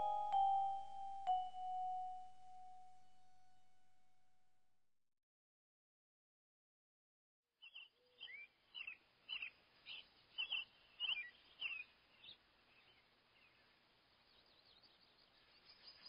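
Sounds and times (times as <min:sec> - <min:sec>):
bird chirping: 0:00.0 - 0:02.8, 0:07.6 - 0:16.0
faint outdoor hiss: 0:00.0 - 0:03.8, 0:07.6 - 0:16.0.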